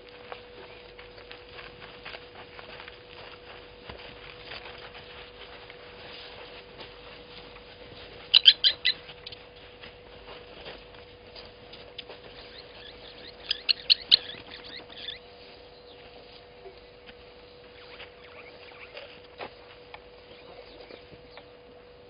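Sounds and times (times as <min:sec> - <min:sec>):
faint steady hum: 0:00.0 - 0:22.0
bird calling sharp notes: 0:08.3 - 0:09.4, 0:12.0 - 0:16.0, 0:17.6 - 0:19.2.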